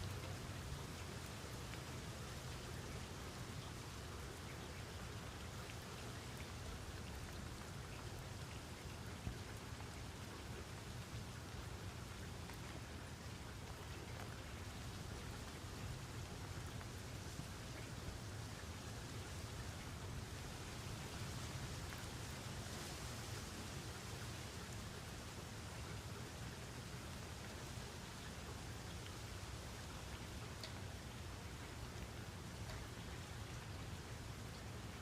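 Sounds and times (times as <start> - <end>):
rain pattering: 0.0 - 35.0
small tick: 30.6 - 30.8.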